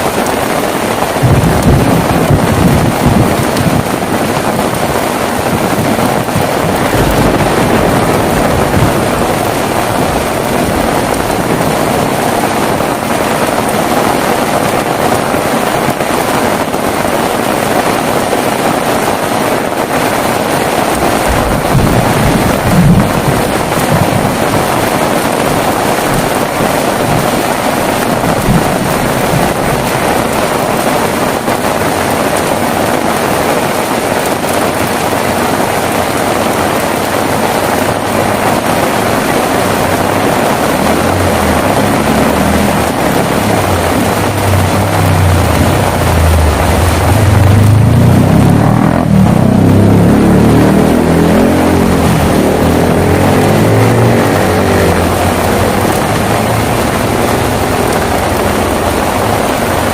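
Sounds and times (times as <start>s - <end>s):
heavy rain falling: 0.0s - 59.9s
low rumble: 1.2s - 4.3s, 5.4s - 13.9s, 20.6s - 31.2s, 38.7s - 49.8s.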